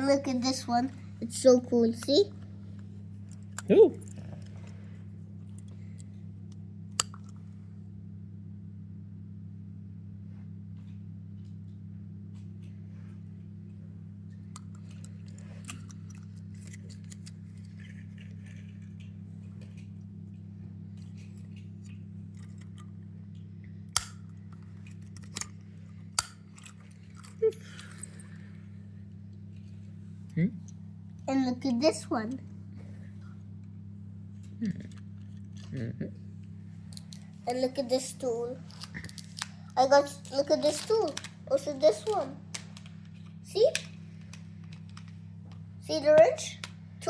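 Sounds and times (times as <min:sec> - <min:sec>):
steady low hum: 0:00.0 - 0:47.0
plastic toys clicking and knocking: 0:40.0 - 0:42.9.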